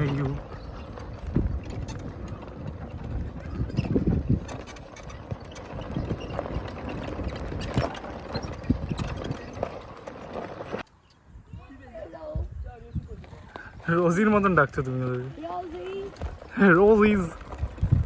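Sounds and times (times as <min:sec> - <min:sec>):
vehicle knocking on bumpy track: 0:00.0 - 0:10.8.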